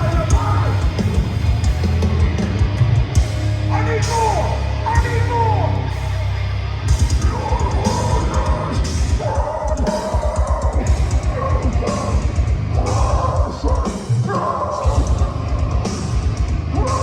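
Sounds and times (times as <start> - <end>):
heavy metal band playing: 0.0 - 17.0
fast dense drum hits: 6.9 - 13.8.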